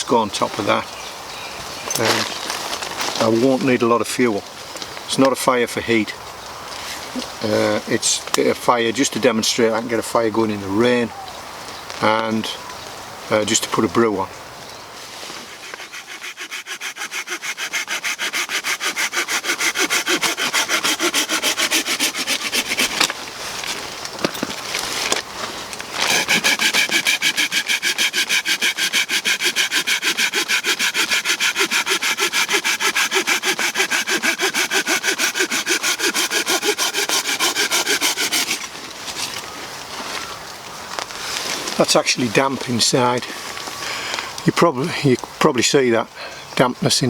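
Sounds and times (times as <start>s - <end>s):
hand saw cutting a branch: 15.3s - 23.8s, 26.0s - 39.4s.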